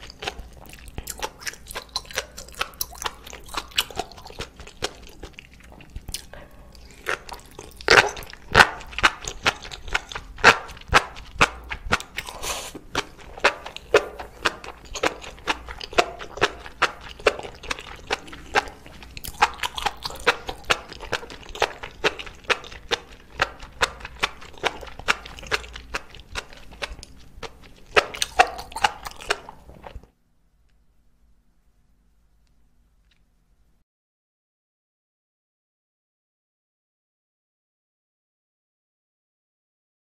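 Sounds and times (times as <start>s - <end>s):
bite and slurp: 0.0s - 30.0s
wet chewing mouth clicks: 0.0s - 30.1s.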